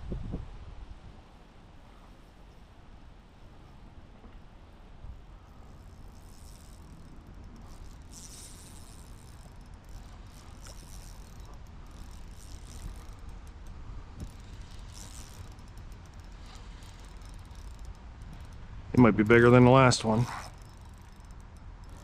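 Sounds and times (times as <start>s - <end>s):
fishing reel clicking and whirring: 5.2s - 22.0s.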